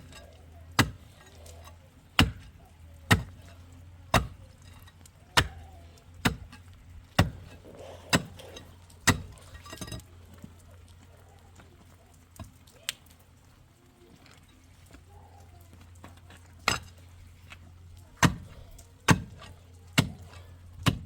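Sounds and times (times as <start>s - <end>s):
hand tool striking hard material: 0.0s - 1.6s, 2.2s - 10.0s, 18.2s - 21.0s
small clatters: 2.5s - 20.9s.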